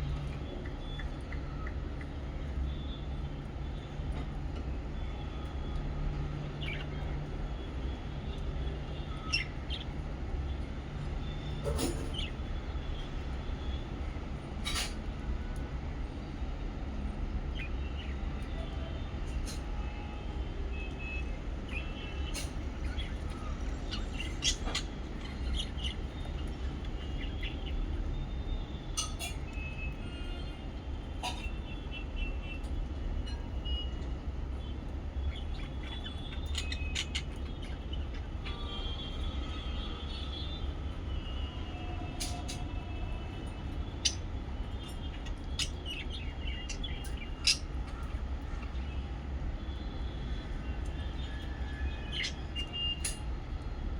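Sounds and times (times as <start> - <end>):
lovebirds chirping: 8.9 - 10.0, 21.7 - 30.6, 33.4 - 39.5, 43.2 - 49.0.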